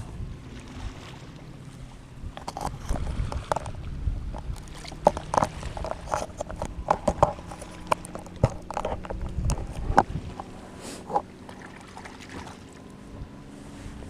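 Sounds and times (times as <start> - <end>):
knocks and clicks of handled gear: 2.4 - 11.6.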